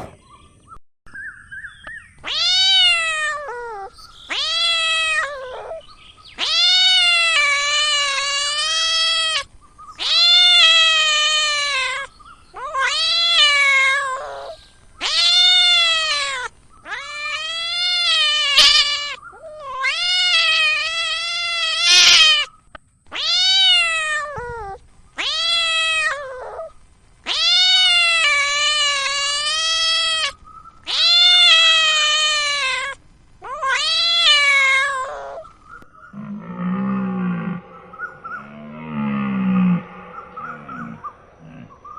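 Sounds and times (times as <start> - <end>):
cat meowing: 2.2 - 22.5, 23.1 - 26.7, 27.3 - 30.3, 30.9 - 35.4, 36.2 - 41.8.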